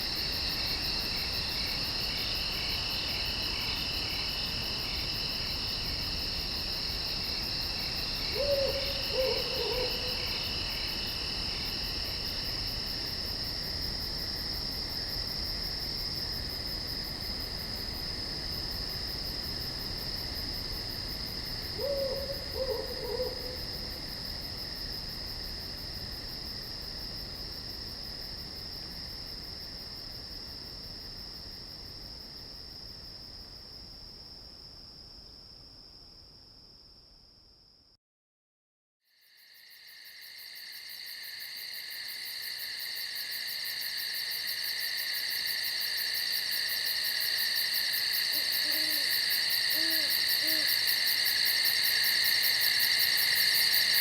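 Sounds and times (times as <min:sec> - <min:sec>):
crickets and insects trilling: 0:00.0 - 0:32.9, 0:39.2 - 0:54.0
owl hooting: 0:08.3 - 0:10.3, 0:21.8 - 0:23.6, 0:48.3 - 0:50.9.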